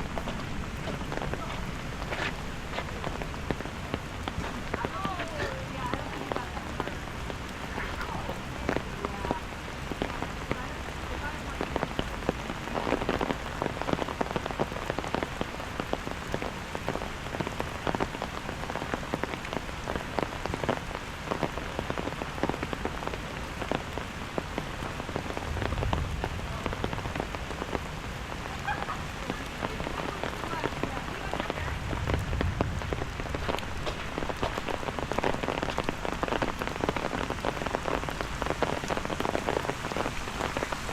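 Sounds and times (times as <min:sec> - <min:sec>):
rain pattering on hard surfaces: 0:00.0 - 0:40.9.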